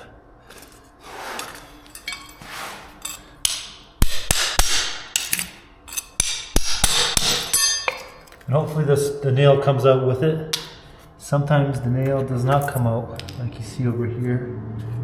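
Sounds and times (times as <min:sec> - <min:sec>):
scraping: 0:00.5 - 0:03.5
hammer blows with metallic ring: 0:03.0 - 0:08.2.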